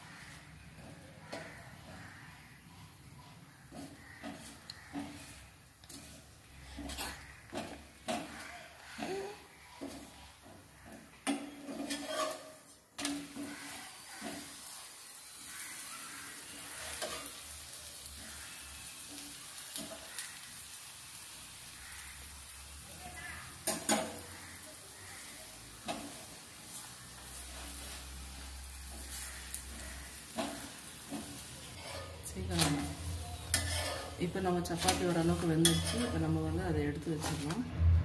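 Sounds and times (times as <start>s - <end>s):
spatula scraping pan: 0.0s - 20.7s, 23.2s - 37.6s
flatbread sizzling in oil: 0.0s - 37.6s
utensils tapping metal pan: 3.7s - 14.7s, 19.7s - 20.2s, 23.6s - 24.7s, 25.4s - 37.6s.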